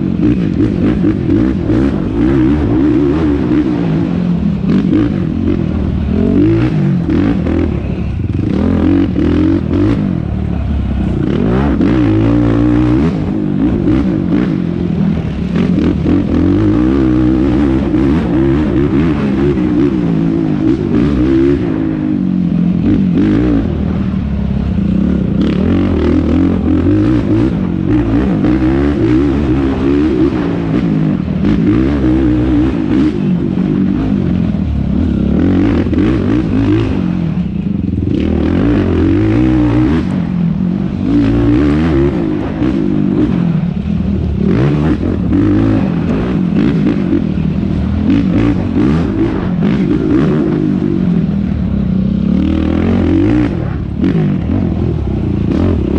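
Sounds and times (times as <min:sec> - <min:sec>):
quad engine revving: 0:00.0 - 0:55.9.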